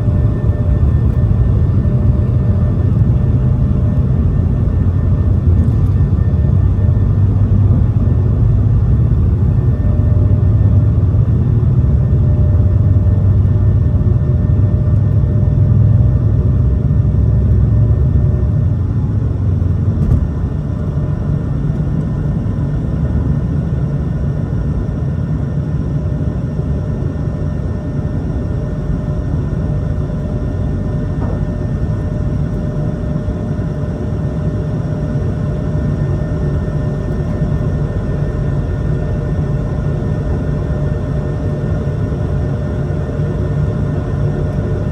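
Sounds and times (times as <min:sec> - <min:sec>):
jet engines rumbling and whining: 0:00.0 - 0:44.9.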